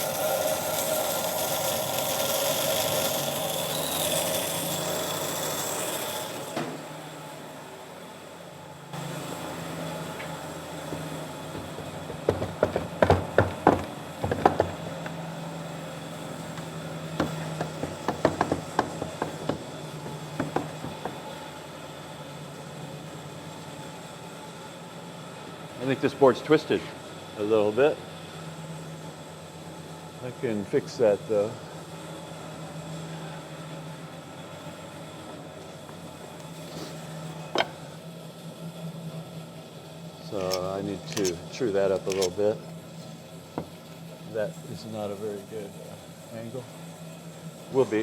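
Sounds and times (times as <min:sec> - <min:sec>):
tool rasping wood: 0:00.0 - 0:06.4, 0:10.3 - 0:21.4
wooden boards knocking: 0:10.8 - 0:15.2, 0:16.5 - 0:21.4.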